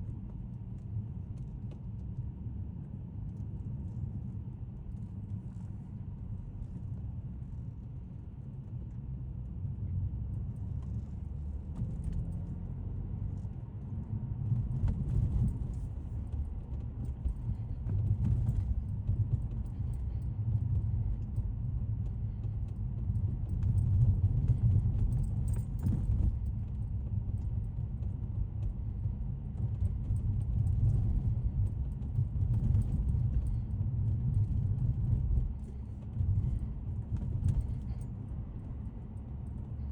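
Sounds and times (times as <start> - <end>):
car engine and road noise in cabin: 0.0 - 39.9
light rattles: 14.5 - 28.2, 29.6 - 39.9.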